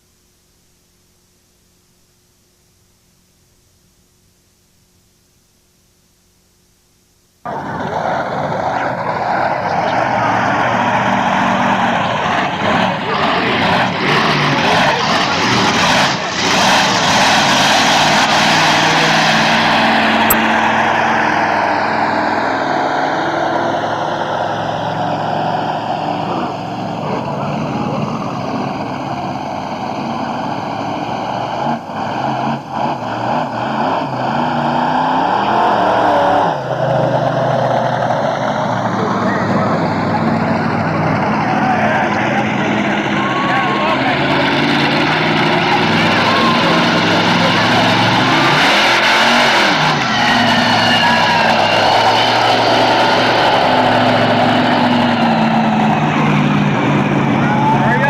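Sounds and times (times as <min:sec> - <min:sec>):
monster truck engine revving: 0:07.5 - 0:58.0.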